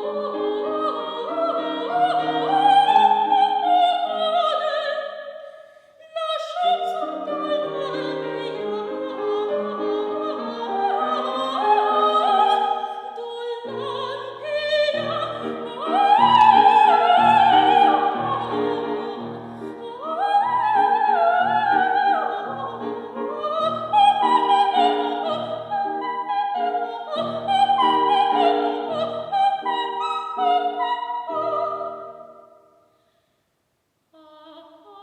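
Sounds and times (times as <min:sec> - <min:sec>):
soprano singing operatic runs: 0:00.0 - 0:32.6
piano chords: 0:06.6 - 0:32.4.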